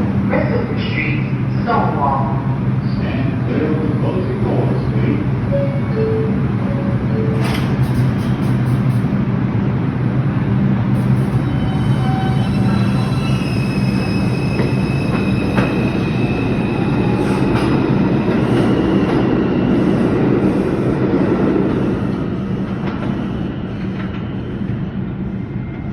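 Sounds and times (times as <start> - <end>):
subway train motor hum: 0.0 - 25.9
high wheel squeal: 11.2 - 17.6.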